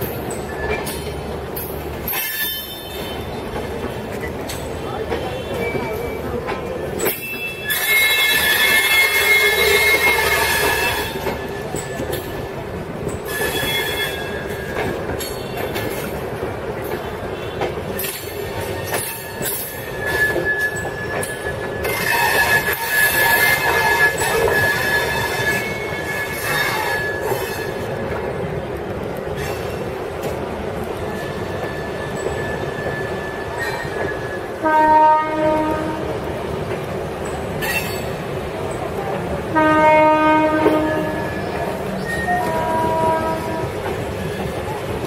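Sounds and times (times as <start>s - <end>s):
train wheels squealing: 0.0s - 3.6s, 4.2s - 16.1s, 17.4s - 27.9s, 31.0s - 34.6s, 37.2s - 38.8s, 41.2s - 43.4s
train rumbling: 0.0s - 45.0s.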